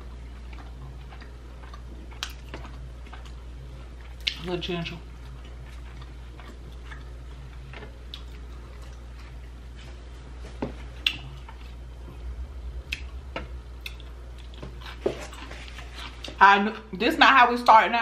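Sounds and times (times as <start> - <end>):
low steady hum: 0.0 - 18.0
mouth clicks and smacks chewing: 0.2 - 3.4, 4.0 - 4.5, 5.2 - 9.5, 11.0 - 11.8.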